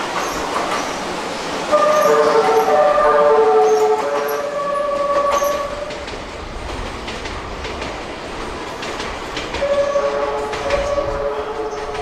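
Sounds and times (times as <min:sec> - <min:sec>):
train wheels clacking over rail joints: 0:00.0 - 0:03.0, 0:03.6 - 0:12.0
train horn melody: 0:01.7 - 0:05.9, 0:09.6 - 0:12.0.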